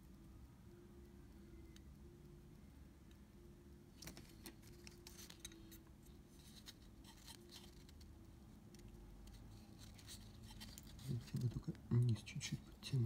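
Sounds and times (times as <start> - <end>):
low steady hum: 0.0 - 13.0
small parts clicking and scratching: 4.0 - 13.0.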